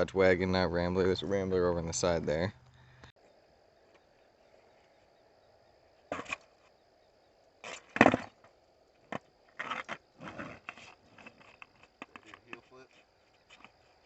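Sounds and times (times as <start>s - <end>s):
skateboard clattering on hard ground: 6.1s - 6.5s, 7.6s - 12.8s.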